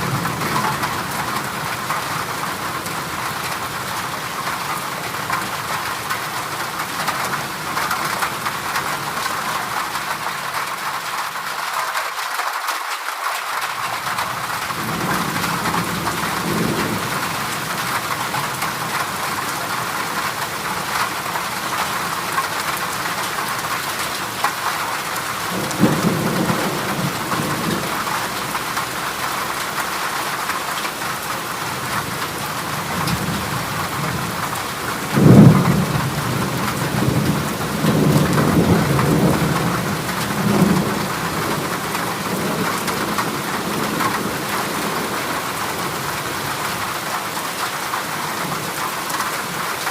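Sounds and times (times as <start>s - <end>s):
heavy rain on a metal roof: 0.0s - 49.9s
thunder rumbling: 14.0s - 21.4s, 25.4s - 29.6s, 31.8s - 46.2s
sudden thunder clap: 35.2s - 39.8s.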